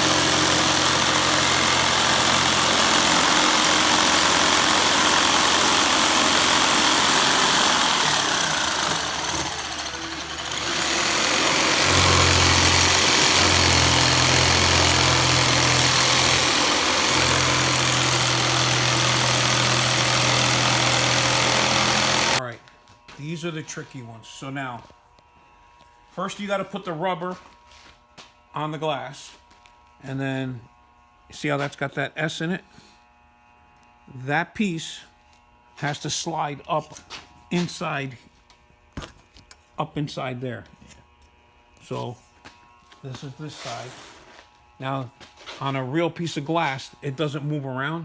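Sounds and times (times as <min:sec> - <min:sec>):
power tool cutting plastic sheet: 0:00.0 - 0:22.4, 0:35.7 - 0:48.0.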